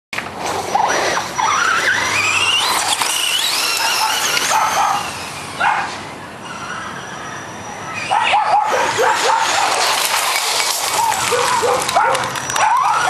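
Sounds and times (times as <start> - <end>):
rc truck motor whining: 0.2 - 13.0
tyres scrubbing on concrete: 8.7 - 12.6.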